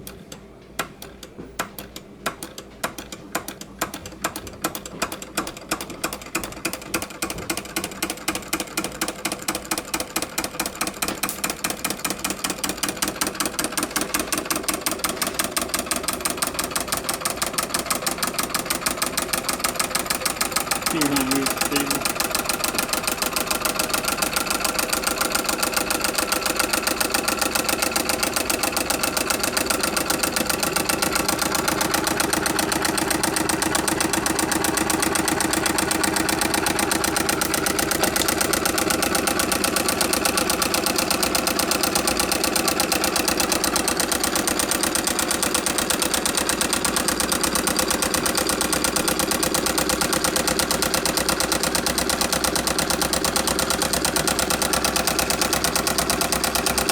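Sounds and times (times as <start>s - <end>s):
solenoid engine clacking: 0.0s - 56.9s.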